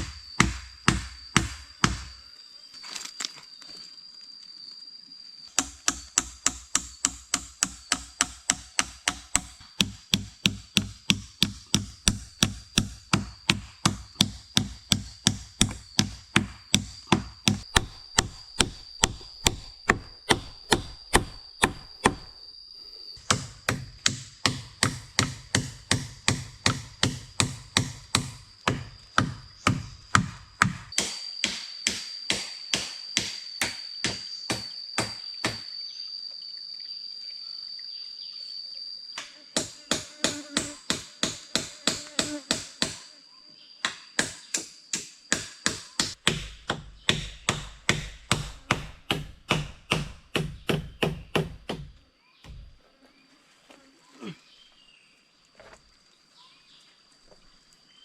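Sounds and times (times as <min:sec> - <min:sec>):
hammer driving nails into wood: 0:05.6 - 0:22.2, 0:44.2 - 0:51.9.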